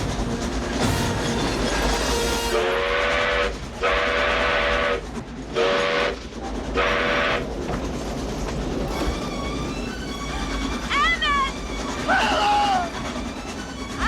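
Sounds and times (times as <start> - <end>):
steam locomotive whistle: 0.0 - 6.2, 6.8 - 7.5
train running noise: 0.0 - 14.0.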